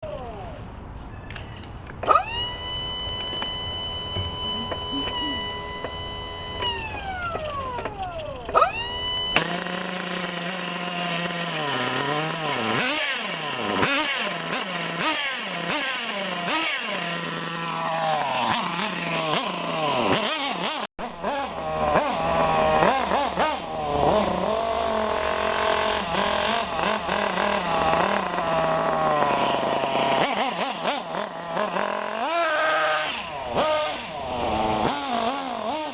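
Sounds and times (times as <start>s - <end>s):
small motors revving: 0.0s - 0.6s, 2.0s - 35.9s
high steady whine: 1.4s - 15.6s.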